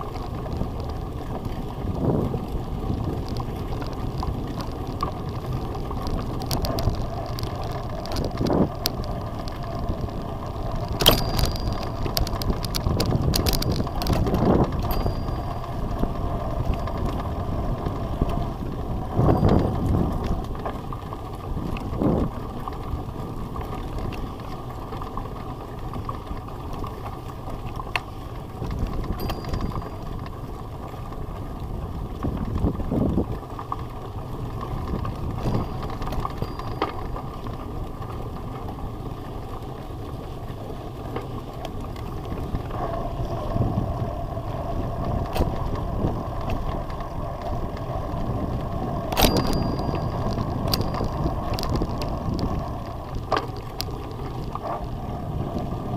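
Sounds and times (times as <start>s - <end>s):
bicycle tyres rumbling: 0.0s - 55.9s
clicks and rattles: 3.2s - 9.9s, 10.8s - 17.3s, 26.1s - 30.4s, 49.1s - 54.8s.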